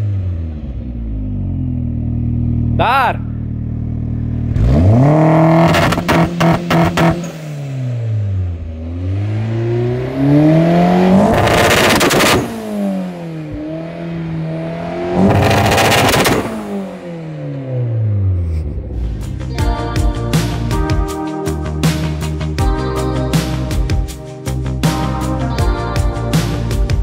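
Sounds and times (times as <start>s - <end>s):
car engine revving: 0.0s - 22.6s
exhaust crackling pops: 15.3s - 16.5s.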